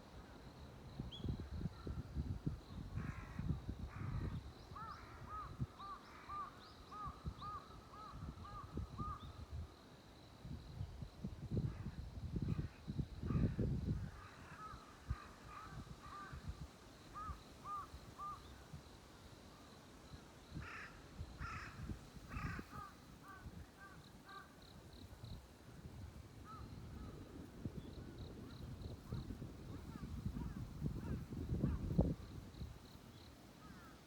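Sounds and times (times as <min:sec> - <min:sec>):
crow cawing: 0:20.6 - 0:24.6.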